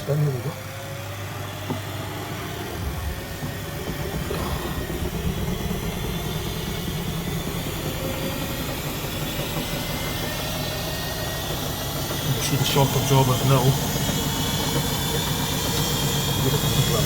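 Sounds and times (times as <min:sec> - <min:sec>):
faint motor whine: 0:00.0 - 0:17.0
washing machine spin rumble: 0:00.0 - 0:17.0.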